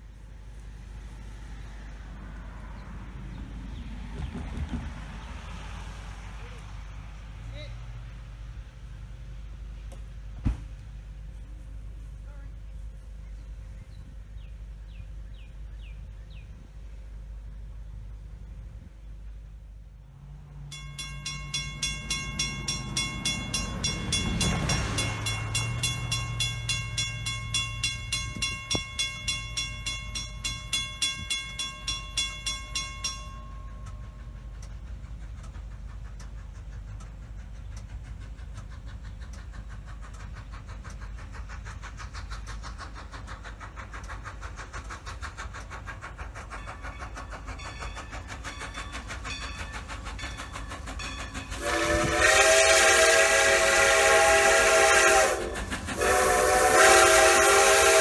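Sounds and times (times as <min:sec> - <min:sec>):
steam locomotive running beat: 0:08.2 - 0:58.0
pulsing steam whistle: 0:21.3 - 0:35.2, 0:46.4 - 0:58.0.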